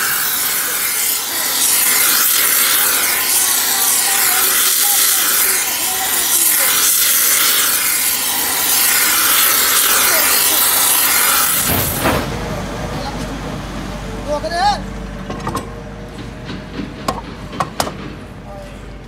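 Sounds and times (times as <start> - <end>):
harsh rasping hiss: 0.0 - 12.2.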